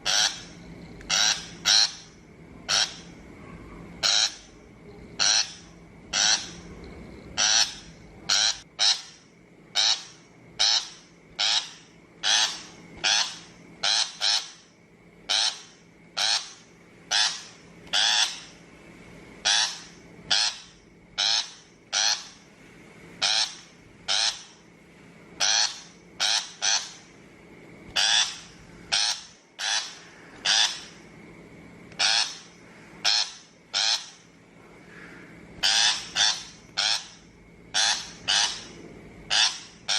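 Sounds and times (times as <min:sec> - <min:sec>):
bird scratchy calls: 0:00.0 - 0:03.2, 0:04.0 - 0:04.5, 0:05.2 - 0:06.7, 0:07.3 - 0:09.2, 0:09.8 - 0:14.6, 0:15.3 - 0:18.5, 0:19.4 - 0:22.4, 0:23.2 - 0:24.5, 0:25.4 - 0:27.1, 0:27.9 - 0:31.0, 0:32.0 - 0:34.2, 0:35.6 - 0:39.9.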